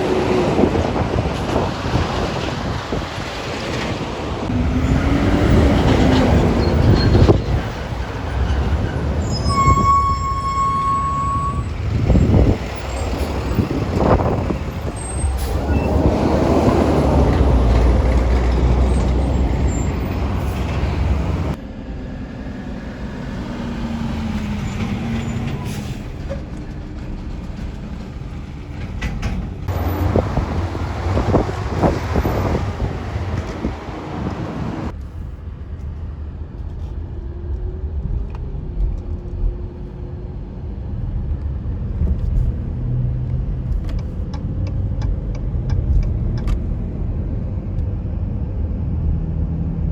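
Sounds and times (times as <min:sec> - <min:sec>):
passing traffic: 0:00.0 - 0:49.9
high brake squeal: 0:06.1 - 0:07.8, 0:08.4 - 0:13.8, 0:14.8 - 0:16.1, 0:18.8 - 0:21.2, 0:24.6 - 0:26.4
diesel truck engine running: 0:11.0 - 0:35.0.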